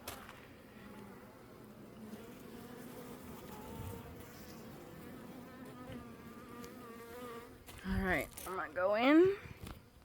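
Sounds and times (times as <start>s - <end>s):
honey bees buzzing: 0.0s - 7.8s
bee flying past: 0.0s - 8.6s.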